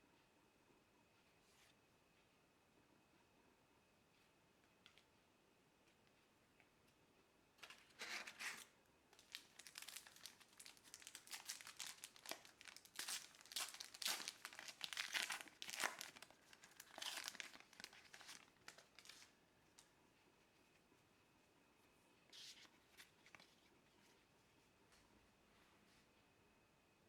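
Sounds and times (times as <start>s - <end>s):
wrapper crinkling and tearing: 7.6s - 19.3s.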